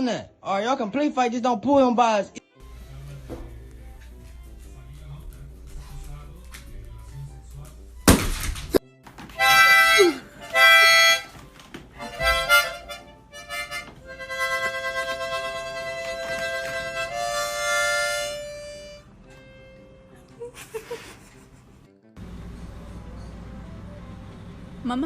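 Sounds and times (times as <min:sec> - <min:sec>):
harmonica playing: 0:09.3 - 0:20.9.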